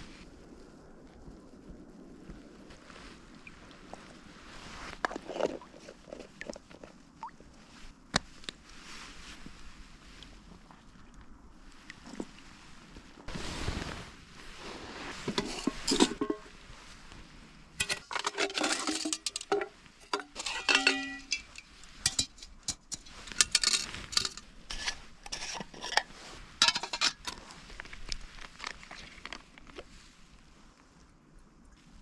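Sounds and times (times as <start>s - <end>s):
metal cookware clinking: 15.4s - 16.5s, 17.8s - 26.0s, 26.6s - 27.3s.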